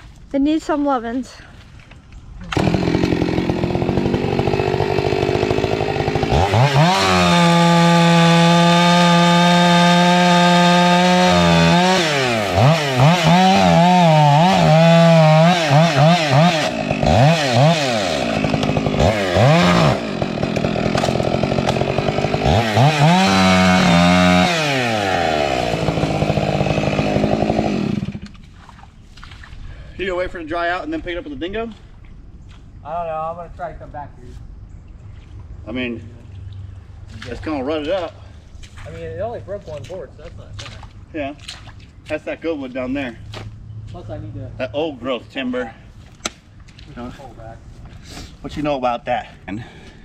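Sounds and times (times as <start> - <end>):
chainsaw engine revving: 2.5 - 28.3.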